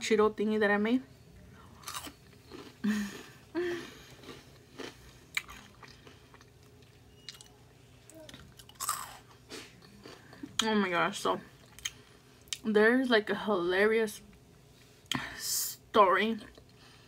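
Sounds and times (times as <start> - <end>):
chewing crunchy snacks: 1.8 - 10.6.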